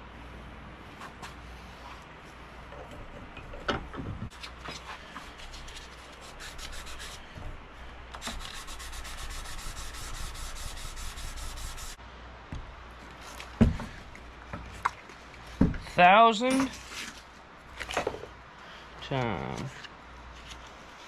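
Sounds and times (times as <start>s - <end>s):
sandpaper rubbing on steel blade: 5.2s - 7.3s, 8.2s - 12.0s.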